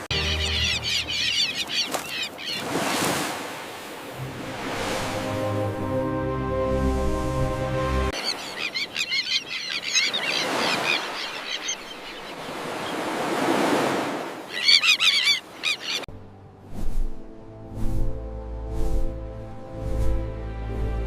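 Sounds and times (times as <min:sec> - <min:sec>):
surf washing: 0:00.0 - 0:16.0
music: 0:00.1 - 0:01.4, 0:04.2 - 0:08.2, 0:16.1 - 0:21.0
terns chattering calls: 0:00.1 - 0:02.8, 0:08.2 - 0:13.0, 0:14.5 - 0:16.1.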